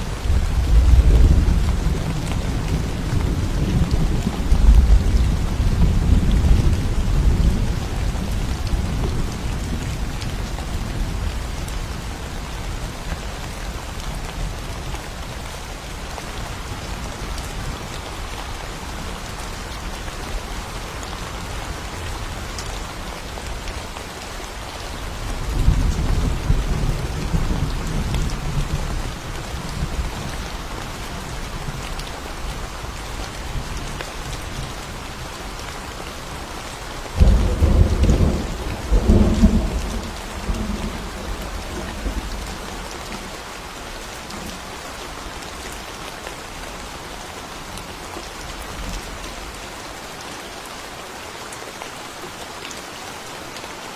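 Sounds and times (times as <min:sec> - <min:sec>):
steady rain: 0:00.0 - 0:53.9
thunder rumbling: 0:00.1 - 0:10.1, 0:37.2 - 0:42.8.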